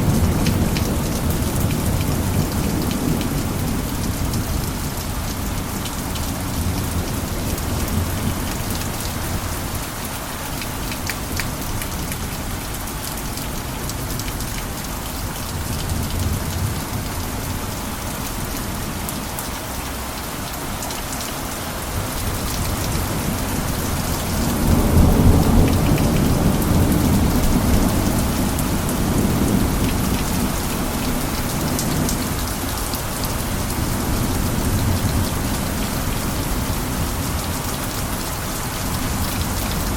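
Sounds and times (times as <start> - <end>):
rain pattering on a roof: 0.0 - 39.9
low rumble of thunder: 22.0 - 39.9.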